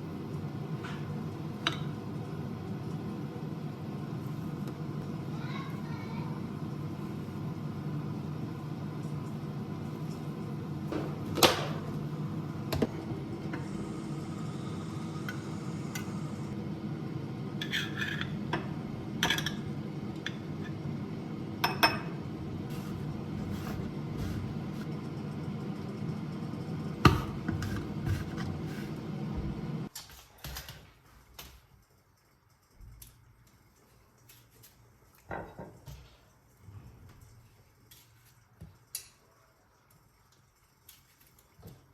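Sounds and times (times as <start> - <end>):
kitchen appliance humming: 0.0 - 29.9.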